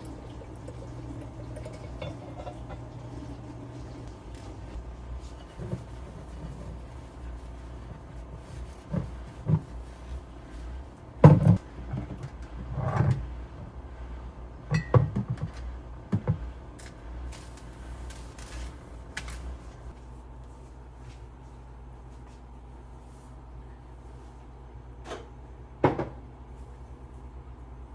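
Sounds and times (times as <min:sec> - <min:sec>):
objects knocking and clunking: 0:11.2 - 0:13.2.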